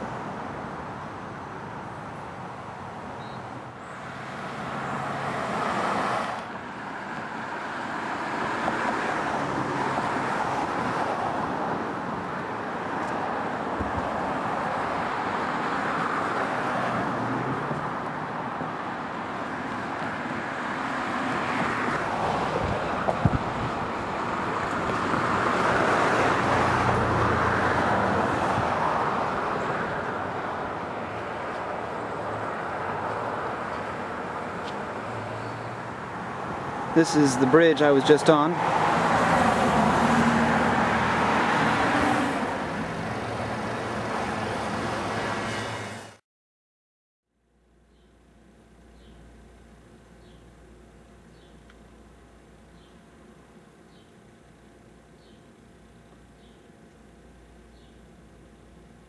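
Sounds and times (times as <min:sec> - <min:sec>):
cars going by: 0:00.0 - 0:46.2.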